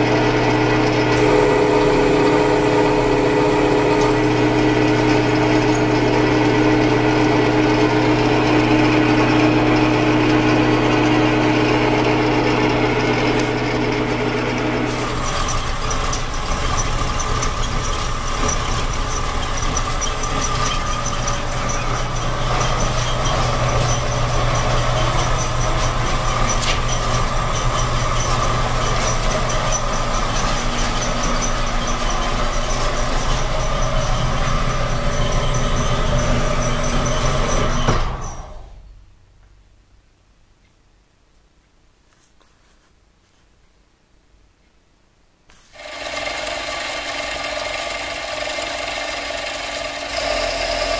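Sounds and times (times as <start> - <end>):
workshop machine running: 0.0 - 39.0, 45.5 - 50.9
high squealing tone: 14.6 - 38.8.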